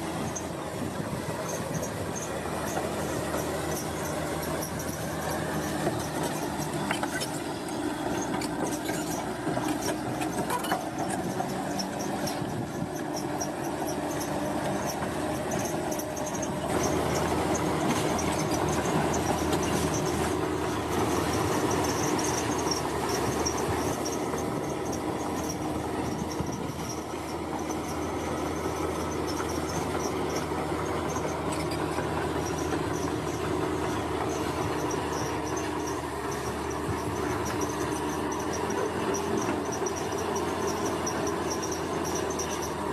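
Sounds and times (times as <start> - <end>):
construction machinery engine drone: 0.0 - 42.9.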